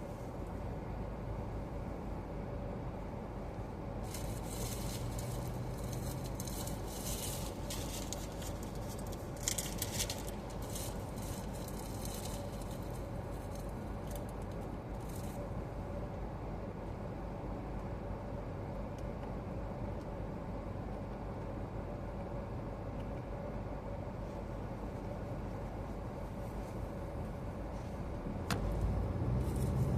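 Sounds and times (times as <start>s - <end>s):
air-conditioning fan blowing: 0.0s - 29.9s
car engine and tyres: 0.0s - 29.9s
scratchy crackles: 4.1s - 14.2s.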